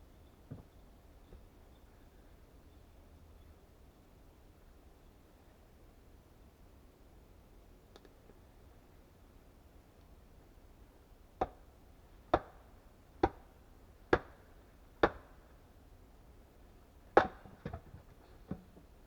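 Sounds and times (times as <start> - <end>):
axe chopping wood: 12.4 - 12.6, 13.2 - 13.4, 14.1 - 14.4, 15.0 - 15.3, 17.2 - 17.8.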